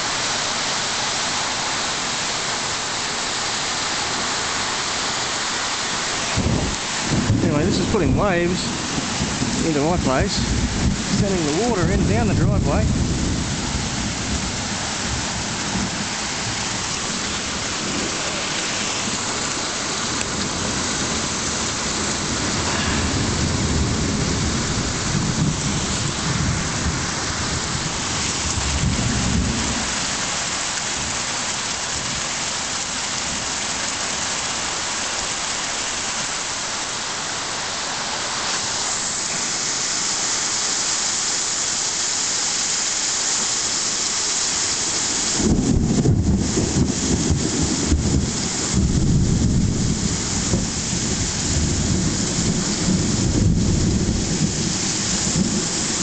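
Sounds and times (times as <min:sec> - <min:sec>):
torrential rain pouring: 0:00.0 - 0:56.0
low rumbling: 0:06.3 - 0:19.5.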